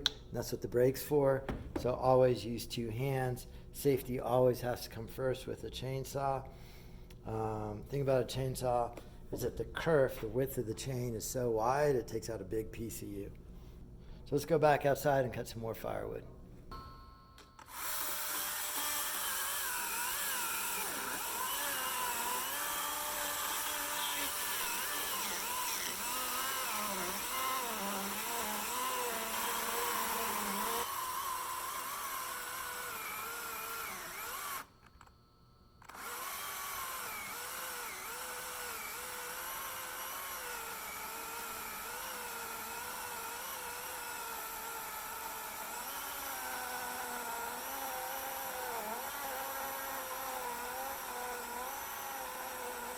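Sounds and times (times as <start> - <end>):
battery chainsaw cutting wood: 17.7 - 34.7, 35.8 - 52.9.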